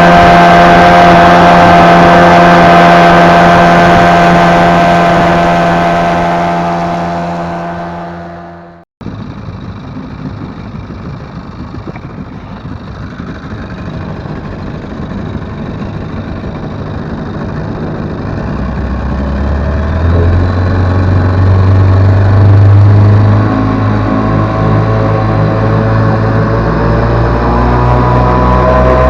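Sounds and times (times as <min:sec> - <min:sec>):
deep low drone: 0:00.0 - 0:29.0
outboard motor running: 0:00.0 - 0:29.0.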